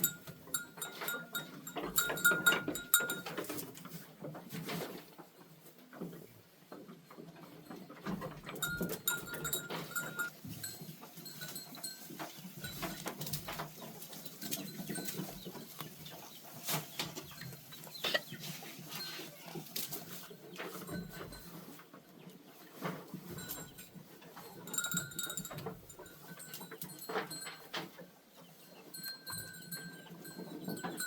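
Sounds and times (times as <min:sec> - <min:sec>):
scattered clicks and knocks: 0:00.0 - 0:03.8.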